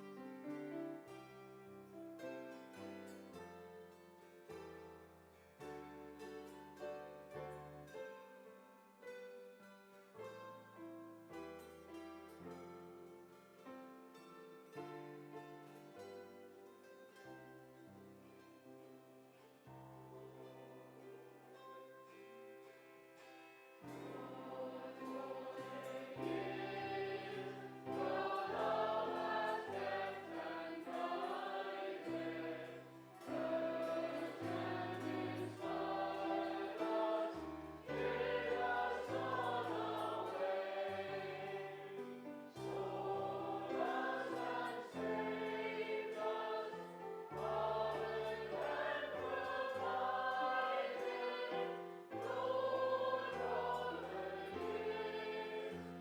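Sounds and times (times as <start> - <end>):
congregation singing a hymn: 20.1 - 22.2, 23.8 - 56.0
instrumental accompaniment: 21.8 - 56.0.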